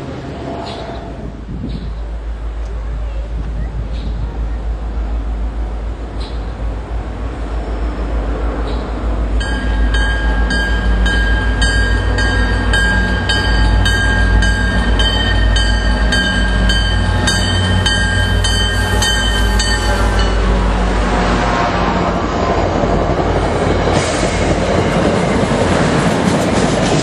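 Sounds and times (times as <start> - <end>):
train engine and wheel rumble: 0.0 - 27.0
locomotive bell ringing: 9.3 - 20.7.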